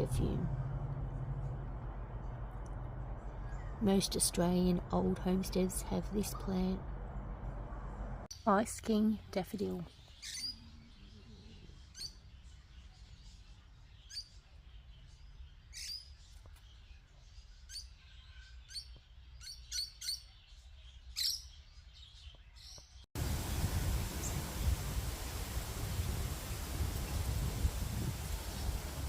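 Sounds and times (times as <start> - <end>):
low steady hum: 0.0 - 8.3
small birds chirping: 8.3 - 29.0
steady rushing noise: 23.2 - 29.0.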